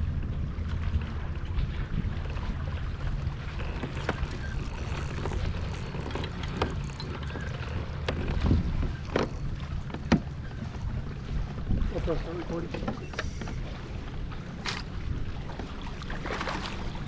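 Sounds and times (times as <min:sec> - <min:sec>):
sharp clicks and knocks: 0:03.5 - 0:10.3.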